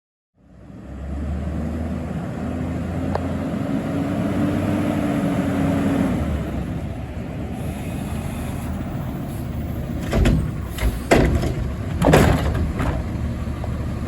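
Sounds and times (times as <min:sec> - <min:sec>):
garbage truck engine running: 0:06.7 - 0:14.0.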